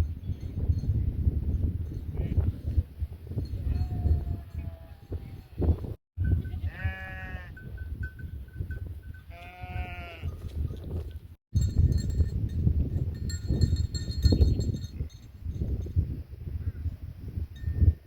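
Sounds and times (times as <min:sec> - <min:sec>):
sheep bleating: 0:06.6 - 0:07.6, 0:09.3 - 0:10.3.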